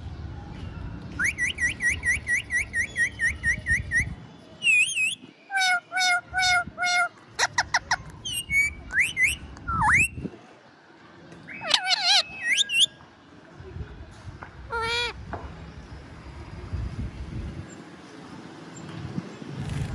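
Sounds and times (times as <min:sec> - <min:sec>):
parrot chirping and whistling: 0:01.2 - 0:10.2, 0:11.5 - 0:12.9.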